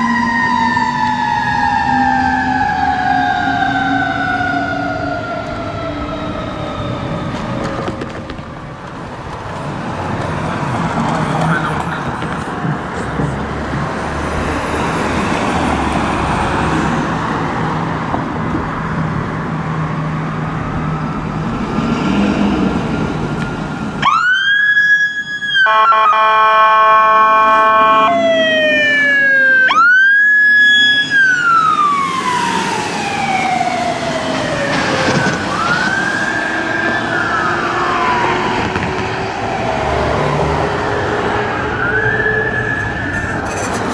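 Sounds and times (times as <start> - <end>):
siren wailing: 0.0 - 8.4, 15.1 - 43.9
street traffic: 0.0 - 43.9
air horn chord blasting: 25.7 - 28.1.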